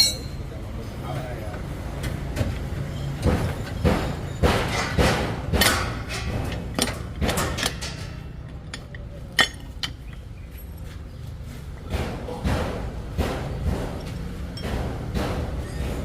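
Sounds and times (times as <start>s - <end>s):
hand tools clinking on metal parts: 0.0s - 0.4s, 5.6s - 11.0s.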